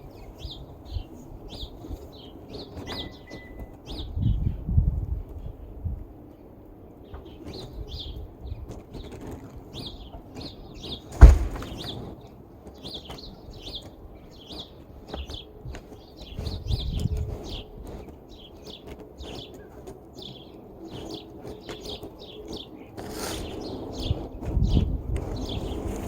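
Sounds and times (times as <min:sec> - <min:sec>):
small birds chirping: 0:00.0 - 0:04.8, 0:05.4 - 0:26.0
sharp knock: 0:11.2 - 0:11.9
snow being brushed off car: 0:23.0 - 0:23.6.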